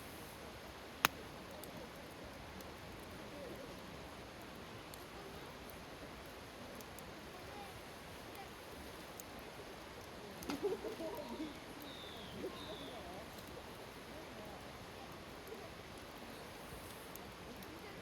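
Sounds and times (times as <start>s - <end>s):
campfire crackling and popping: 0.4s - 18.0s
sharp snap: 1.0s - 1.2s.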